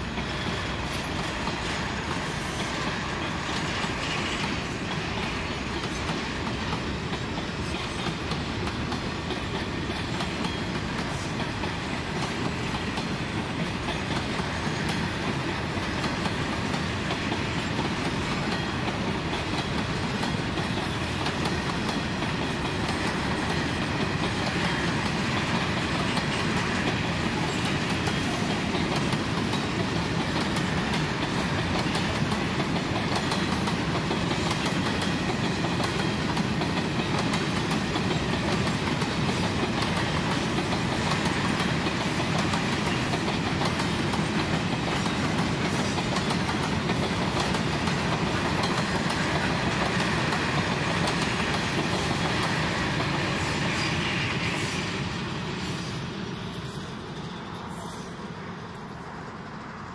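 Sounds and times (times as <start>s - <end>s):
wheels clicking over rail joints: 0.0s - 53.9s
wagons rolling on rails: 0.0s - 55.1s.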